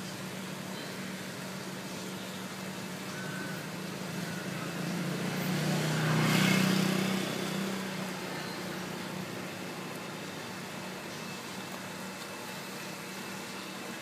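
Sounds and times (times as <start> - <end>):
motor vehicle passing: 4.5 - 9.2.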